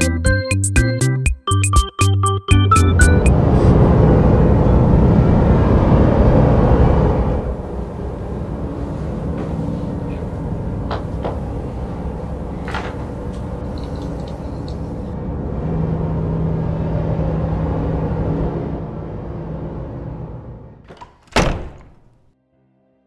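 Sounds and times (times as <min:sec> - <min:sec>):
low rumbling drone: 0:03.0 - 0:20.9
steady low hum: 0:03.3 - 0:20.8.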